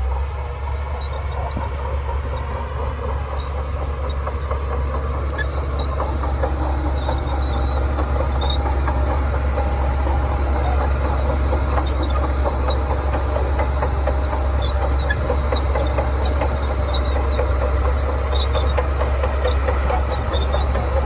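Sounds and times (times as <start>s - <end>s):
bulldozer diesel engine: 0.0s - 21.0s.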